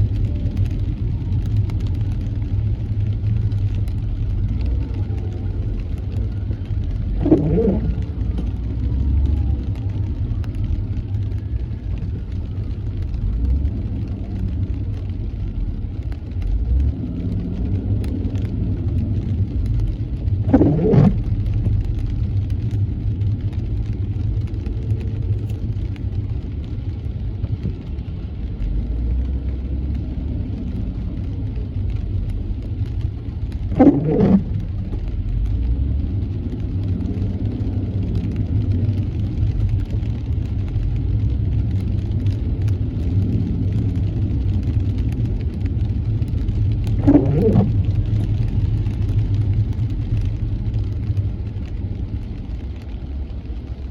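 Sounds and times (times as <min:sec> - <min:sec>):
car road and engine rumble: 0:00.0 - 0:53.9
windshield wiper swishes: 0:00.0 - 0:53.9.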